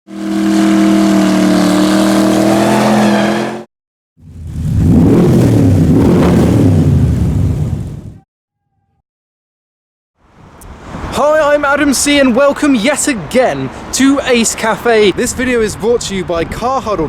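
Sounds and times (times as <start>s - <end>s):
rough rumbling car engine: 0.1s - 8.2s.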